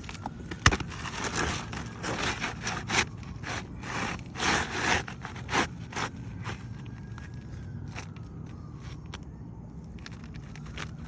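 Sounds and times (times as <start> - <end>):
scraping on roof shingles: 0.2 - 6.5.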